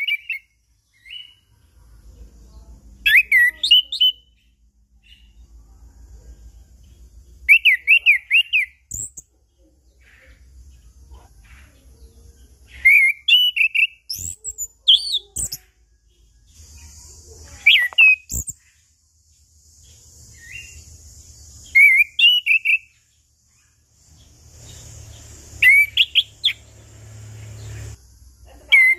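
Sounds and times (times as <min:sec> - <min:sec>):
bird whistling song: 0:00.0 - 0:01.4, 0:03.0 - 0:05.4, 0:07.4 - 0:09.3, 0:12.7 - 0:15.8, 0:16.5 - 0:18.8, 0:20.2 - 0:23.8, 0:24.6 - 0:26.7.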